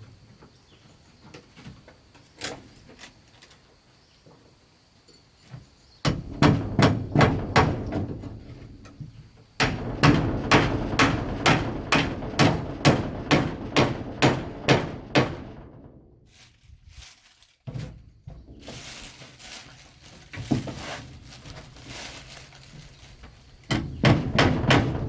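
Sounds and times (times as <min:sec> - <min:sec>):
hammering on wood: 0:06.0 - 0:08.3, 0:09.6 - 0:15.9, 0:23.7 - 0:25.0.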